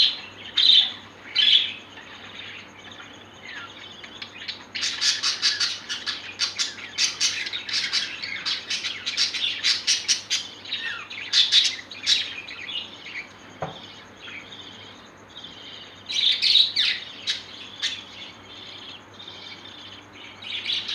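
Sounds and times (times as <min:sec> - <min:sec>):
parrots chirping and chattering: 0:00.0 - 0:20.9.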